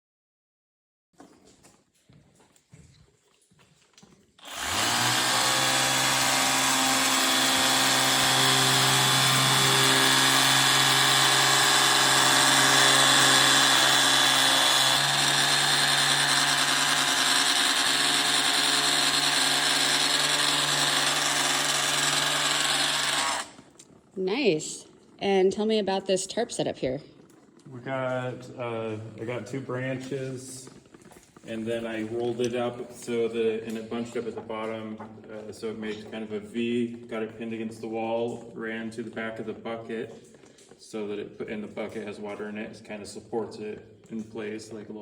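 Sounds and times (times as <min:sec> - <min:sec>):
pressure washer running: 0:04.4 - 0:23.8.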